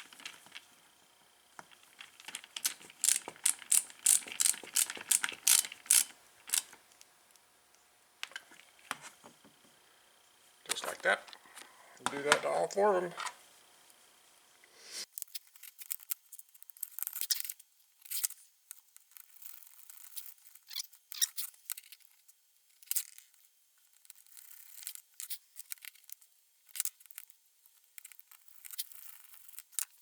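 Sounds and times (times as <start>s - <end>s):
small parts clicking and scraping: 1.6s - 7.4s, 15.1s - 30.0s.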